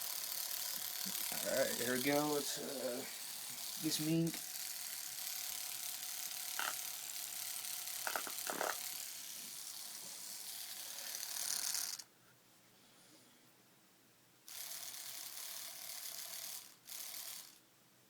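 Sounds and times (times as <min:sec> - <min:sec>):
tattoo machine buzzing: 0:00.0 - 0:12.1, 0:14.5 - 0:17.6.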